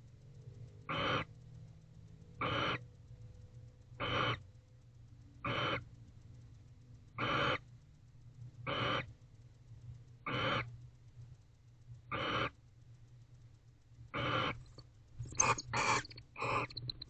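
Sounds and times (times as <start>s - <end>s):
steady low hum: 0.0s - 17.0s
owl hissing calls: 0.9s - 1.3s, 2.4s - 2.8s, 4.0s - 4.4s, 5.4s - 5.8s, 7.2s - 7.6s, 8.7s - 9.1s, 10.3s - 10.7s, 12.1s - 12.6s, 14.2s - 14.6s, 15.3s - 16.9s.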